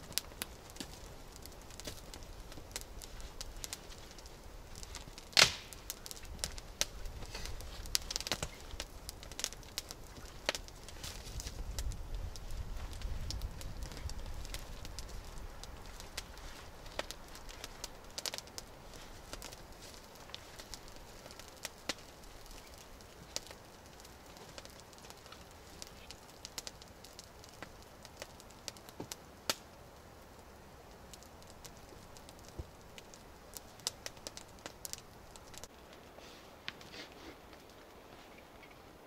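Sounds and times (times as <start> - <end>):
dry twigs snapping: 0.0 - 29.7
faint forest background: 0.0 - 39.0.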